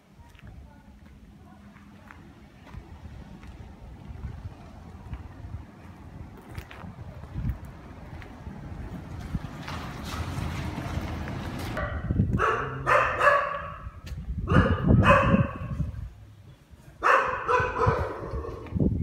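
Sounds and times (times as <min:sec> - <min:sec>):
wind rumble on microphone: 0:02.0 - 0:19.0
dogs barking: 0:11.8 - 0:15.9, 0:17.0 - 0:18.8.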